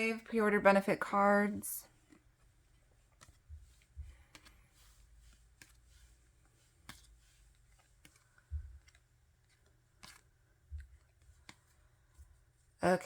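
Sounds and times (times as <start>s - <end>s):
cards clicking and tapping on table: 3.1s - 11.9s
soft low thumps: 8.4s - 9.0s.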